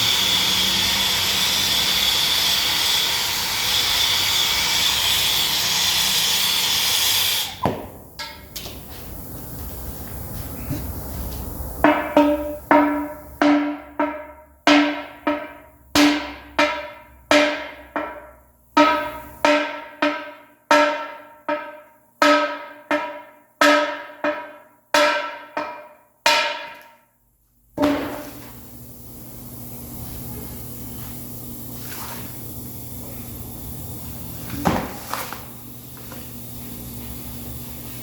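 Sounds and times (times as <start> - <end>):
hammer striking metal wheel rim: 7.5 - 8.8, 11.8 - 27.1, 27.8 - 28.5.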